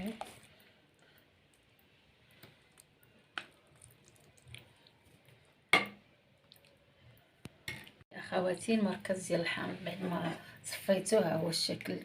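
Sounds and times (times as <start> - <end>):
wet squishing and dripping: 0.0 - 5.6, 6.3 - 8.0.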